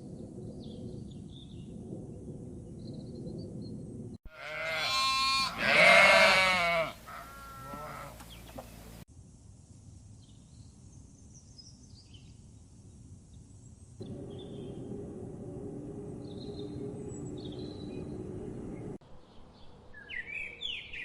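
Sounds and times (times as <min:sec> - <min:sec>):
faint outdoor ambience: 0:00.0 - 0:21.0
animal bleating: 0:04.3 - 0:08.7.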